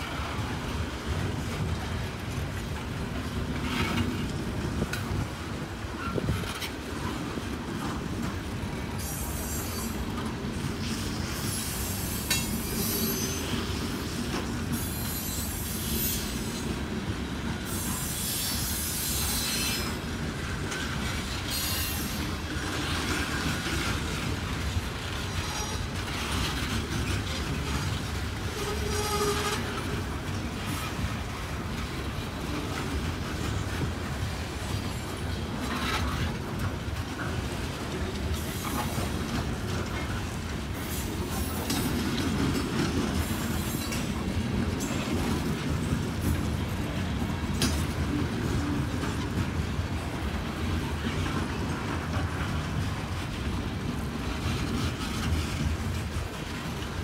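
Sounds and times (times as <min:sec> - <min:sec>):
freight train rumble: 0:00.0 - 0:57.0
high wheel screeches: 0:10.8 - 0:14.0, 0:14.7 - 0:16.7.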